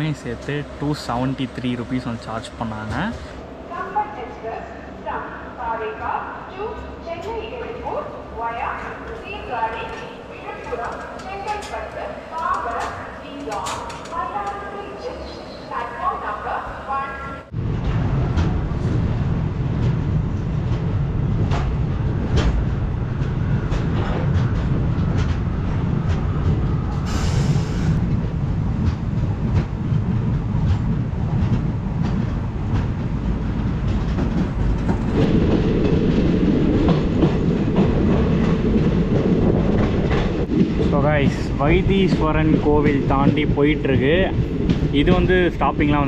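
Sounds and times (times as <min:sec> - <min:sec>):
train wheels rumbling on rails: 0:00.0 - 0:46.0
rail joint clicks: 0:07.0 - 0:07.6, 0:08.7 - 0:15.9, 0:17.6 - 0:46.0.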